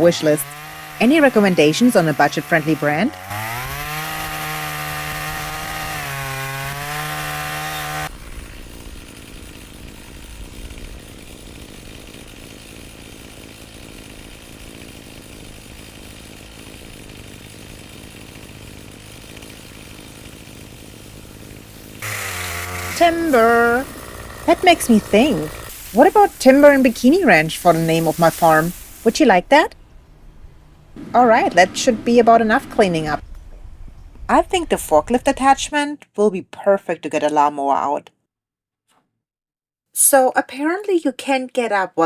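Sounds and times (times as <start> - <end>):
chainsaw running at high revs: 0.0 - 29.7, 31.0 - 33.2
rough untoned noise: 21.9 - 33.2.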